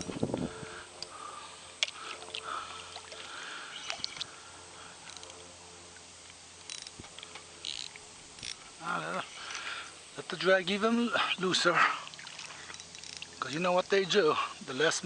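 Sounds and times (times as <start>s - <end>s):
water lapping around kayak: 0.5s - 5.1s, 11.0s - 13.4s.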